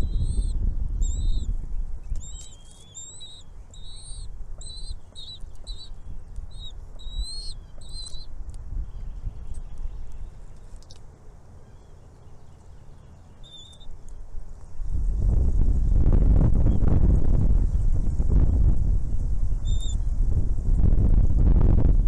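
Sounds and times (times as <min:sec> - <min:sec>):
low rumble: 0:00.0 - 0:02.2
small bird chirping: 0:00.0 - 0:14.3, 0:19.0 - 0:20.2.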